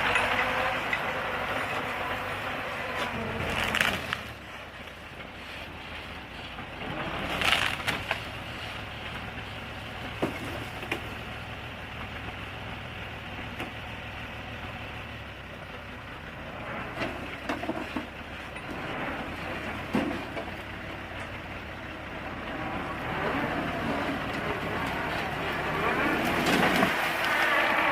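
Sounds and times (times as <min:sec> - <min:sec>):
bulldozer diesel engine running: 0:00.0 - 0:27.9
wood cracking and splintering: 0:01.6 - 0:05.6, 0:06.4 - 0:09.4, 0:10.0 - 0:11.3, 0:22.4 - 0:27.9.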